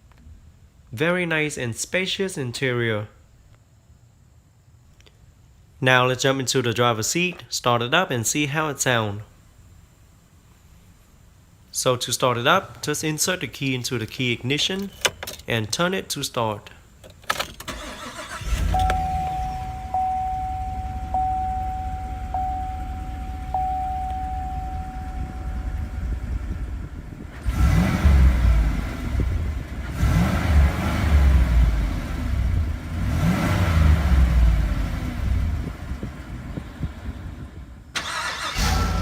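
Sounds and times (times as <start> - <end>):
truck engine starting and idling: 17.2 - 39.0
engine revving: 17.7 - 20.1, 20.7 - 35.8
dashboard warning chime: 18.0 - 26.5.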